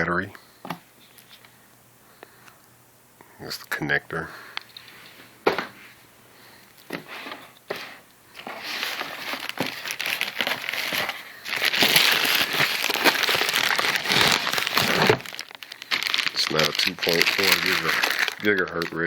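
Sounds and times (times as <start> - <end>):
packaging crinkling: 8.4 - 19.0.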